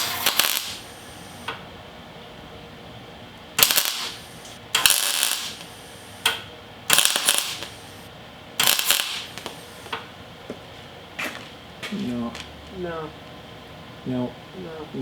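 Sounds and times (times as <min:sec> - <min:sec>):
welding crackling buzz: 0:00.0 - 0:01.7, 0:03.3 - 0:11.6.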